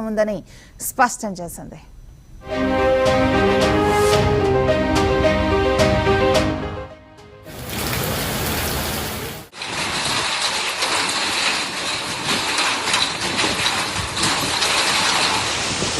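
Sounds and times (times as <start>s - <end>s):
rain falling steadily: 7.5s - 15.9s.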